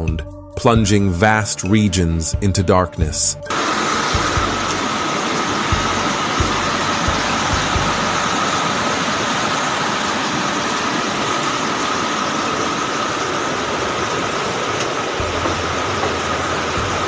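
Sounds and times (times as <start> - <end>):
floodwater rushing: 3.5 - 17.0
low bumps: 5.6 - 8.5, 15.2 - 17.0.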